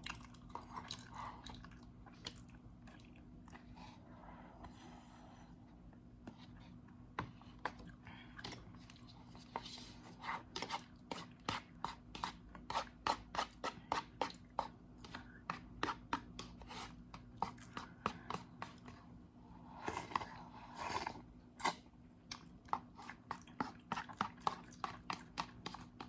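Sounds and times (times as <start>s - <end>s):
chewing crunchy food: 0.0s - 3.8s, 19.9s - 26.0s.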